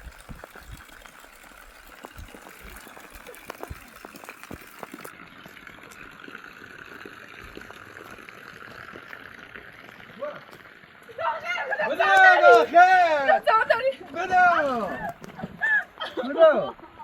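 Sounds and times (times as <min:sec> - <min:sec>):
drops ticking on surfaces: 0:00.0 - 0:06.2
steady rain falling: 0:00.0 - 0:16.9.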